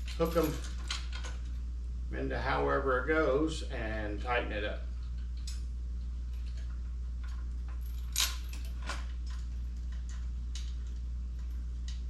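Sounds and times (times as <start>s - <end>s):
metal parts clinking: 0.0s - 1.5s, 6.3s - 12.0s
steady low hum: 0.0s - 12.0s.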